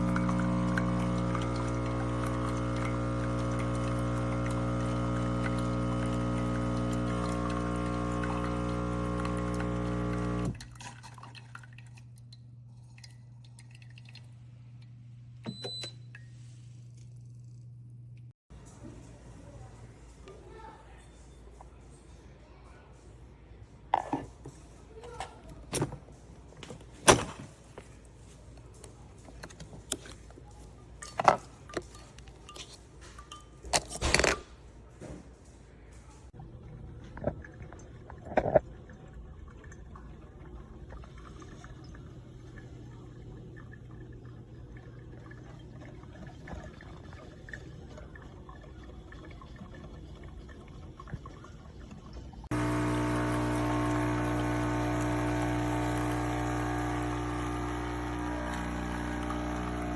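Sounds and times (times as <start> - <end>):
coffee maker humming: 0.0 - 10.8, 23.9 - 24.3, 52.5 - 59.9
liquid trickling into a cup: 0.0 - 14.5, 37.1 - 59.9.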